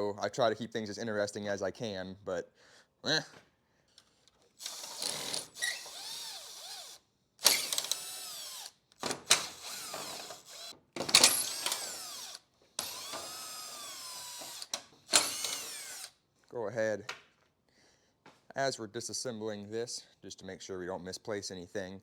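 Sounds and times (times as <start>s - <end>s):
power drill whining: 4.6s - 16.2s.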